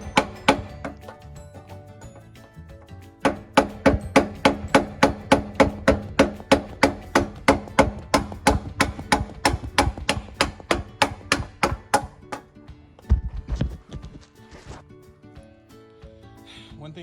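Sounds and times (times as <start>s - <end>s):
mallet hammering wood block on metal: 0.0s - 2.4s, 3.2s - 12.5s.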